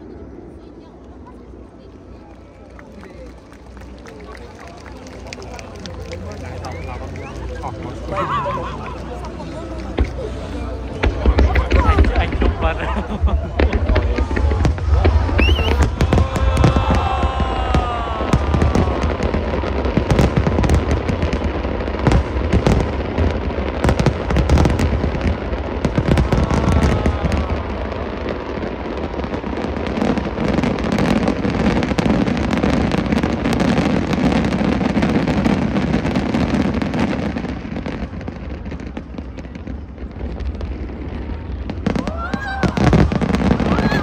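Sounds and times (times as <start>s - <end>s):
low rumble of reports: 0.0s - 25.9s
fireworks bangs and crackling: 0.0s - 44.0s.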